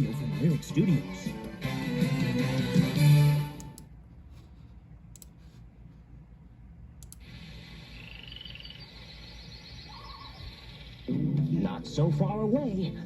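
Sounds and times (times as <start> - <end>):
faint clicks: 7.0 - 7.3
faint high chirps: 7.7 - 11.1.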